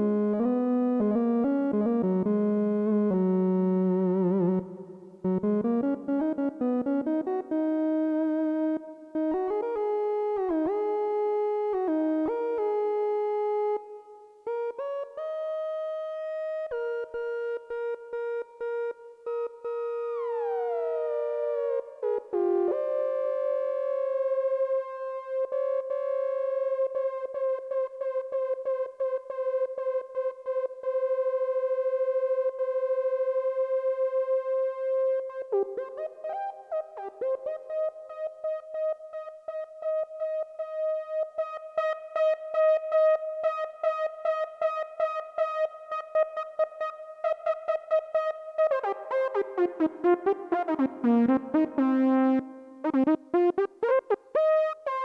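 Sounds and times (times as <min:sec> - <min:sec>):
synthesizer lead melody: 0:43.8 - 0:55.0.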